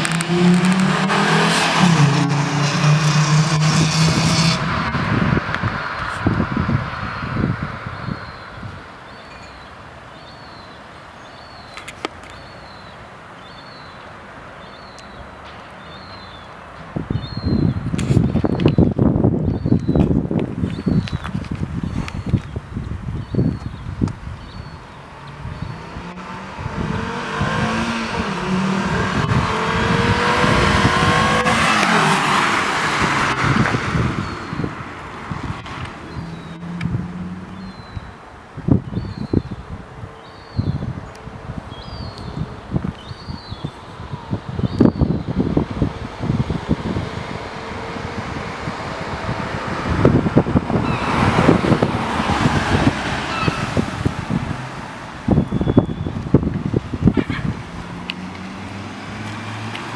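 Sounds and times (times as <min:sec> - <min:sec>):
car accelerating past: 0:00.0 - 0:08.5, 0:25.2 - 0:37.9, 0:44.8 - 0:59.9
wind buffeting microphone: 0:00.0 - 0:09.2, 0:16.8 - 0:59.9.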